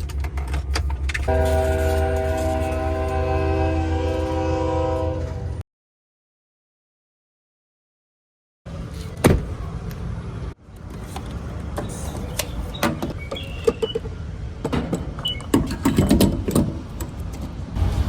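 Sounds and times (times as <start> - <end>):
vehicle interior rumble: 8.7 - 18.0.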